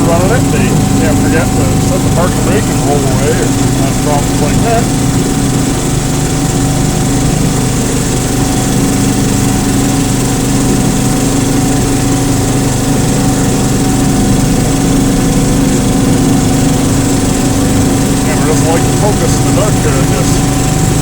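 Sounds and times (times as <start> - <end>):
locomotive engine droning: 0.0 - 21.0.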